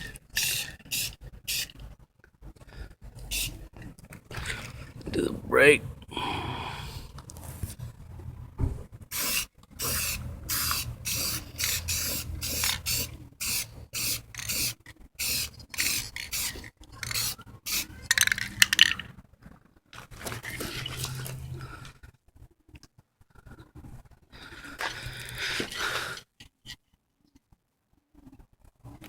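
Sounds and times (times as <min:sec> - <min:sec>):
aerosol can spraying in bursts: 0:00.4 - 0:01.7, 0:03.3 - 0:03.6, 0:09.1 - 0:18.0.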